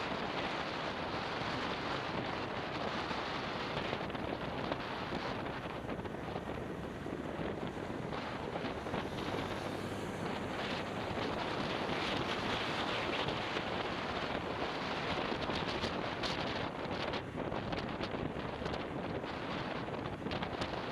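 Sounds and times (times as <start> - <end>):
motorbike running: 0.0 - 20.9
road noise: 0.0 - 20.9
wind rushing over microphone: 0.0 - 20.9.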